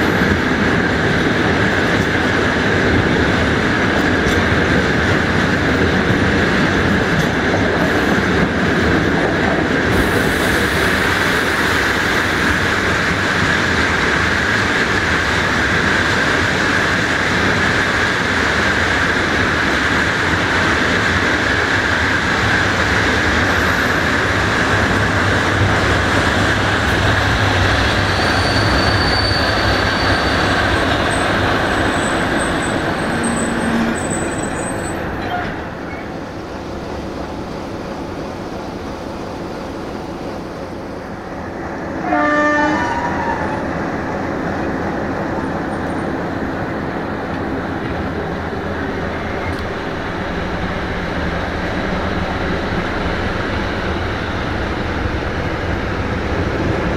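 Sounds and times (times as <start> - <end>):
train rolling on rails: 0.0 - 56.9
high-pitched wheel squeals: 28.0 - 31.2.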